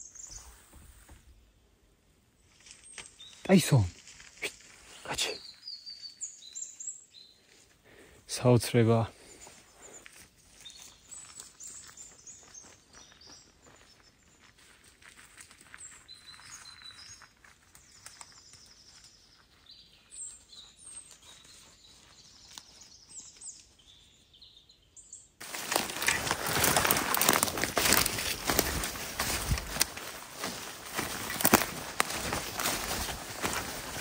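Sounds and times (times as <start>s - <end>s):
songbirds chirping and calling: 0.0s - 1.7s, 2.5s - 14.6s, 15.4s - 34.0s
loud rustling: 25.4s - 34.0s.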